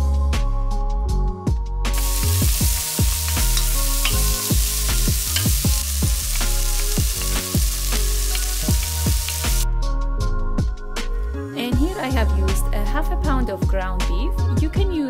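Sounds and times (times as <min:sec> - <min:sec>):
onion sizzling in hot oil: 0:01.9 - 0:09.6.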